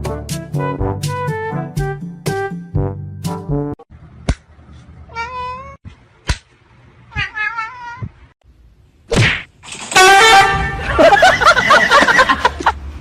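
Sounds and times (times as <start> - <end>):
cat meowing: 5.1 - 5.8, 7.1 - 8.2.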